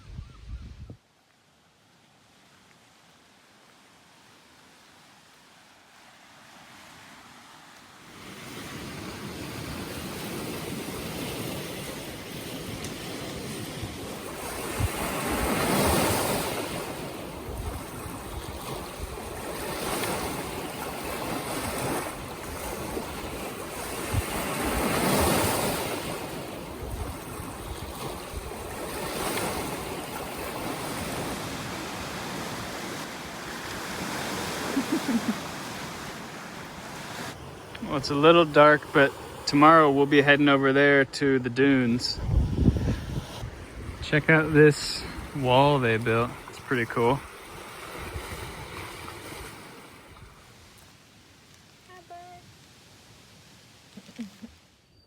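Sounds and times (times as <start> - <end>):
wind buffeting microphone: 0.0 - 1.0, 12.4 - 16.6, 17.3 - 20.6, 21.8 - 25.4, 26.6 - 30.0, 42.0 - 45.4, 47.5 - 49.6
waves breaking on shore: 1.8 - 54.8.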